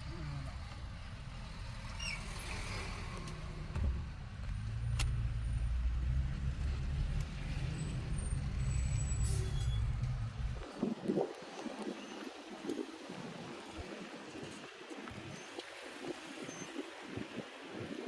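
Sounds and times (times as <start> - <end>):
vehicle engine rumbling: 0.0 - 10.7.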